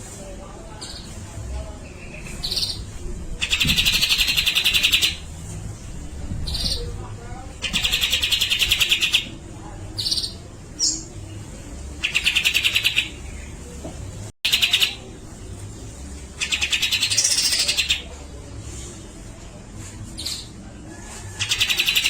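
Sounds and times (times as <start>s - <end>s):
bird rattling song: 3.4s - 5.2s, 7.6s - 9.3s, 12.0s - 13.2s, 16.4s - 18.0s.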